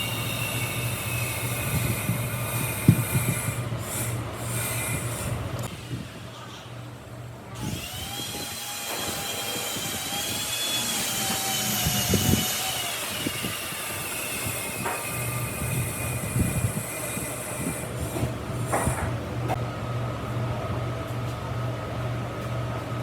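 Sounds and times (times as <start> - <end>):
power tool whining: 7.6 - 19.1.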